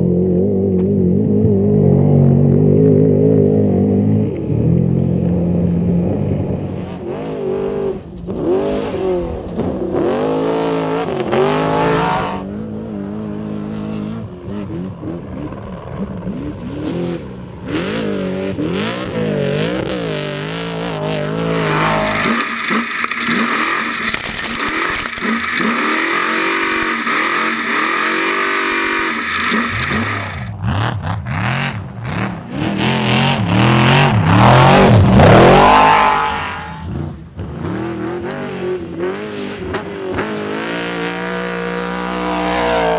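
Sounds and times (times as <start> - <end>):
truck engines revving hard: 0.0 - 42.9
sharp cracks: 22.4 - 25.7.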